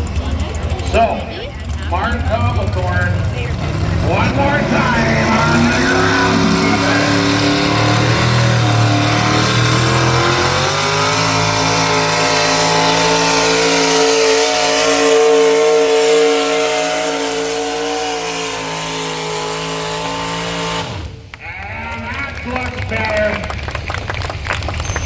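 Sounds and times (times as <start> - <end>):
tractor engine running under load: 0.0 - 17.0, 18.8 - 25.0.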